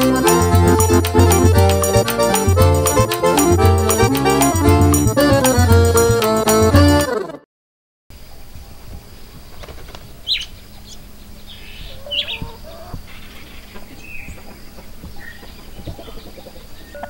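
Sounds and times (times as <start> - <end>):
birds chirping: 8.3 - 17.0.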